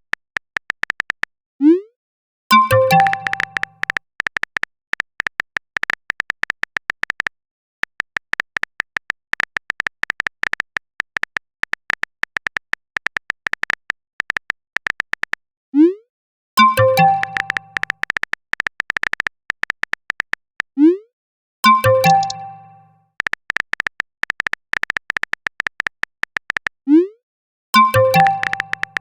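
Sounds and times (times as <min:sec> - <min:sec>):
keyboard typing clicks: 0:00.0 - 0:01.3, 0:02.5 - 0:15.4, 0:16.6 - 0:20.6, 0:21.7 - 0:26.8, 0:27.8 - 0:29.0
message notification chime: 0:02.5 - 0:03.7, 0:16.6 - 0:17.8, 0:21.7 - 0:22.9, 0:27.8 - 0:29.0
short high keystroke beeps: 0:02.5 - 0:04.0, 0:16.6 - 0:18.0, 0:21.7 - 0:22.9, 0:27.8 - 0:29.0.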